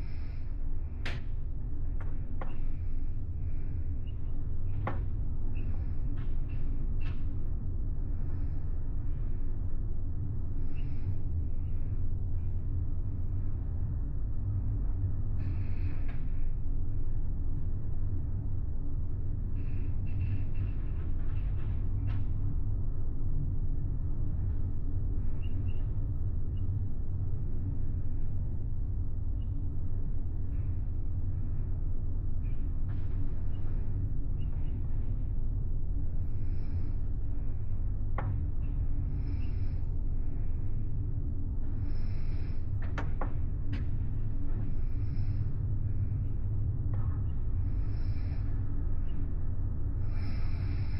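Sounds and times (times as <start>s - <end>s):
ferry engine rumble and hum: 24.0s - 50.9s.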